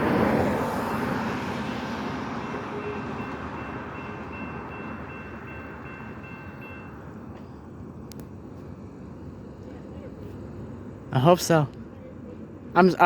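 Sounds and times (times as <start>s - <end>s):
freight train rumbling on rails: 0.0s - 13.0s
faint steady high tone: 2.4s - 7.2s.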